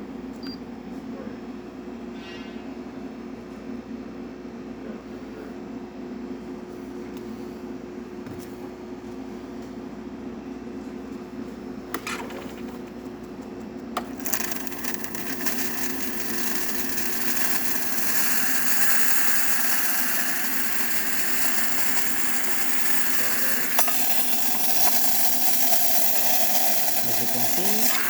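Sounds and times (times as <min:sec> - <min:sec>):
espresso machine humming: 0:13.9 - 0:28.0
steam wand hissing: 0:14.2 - 0:28.0.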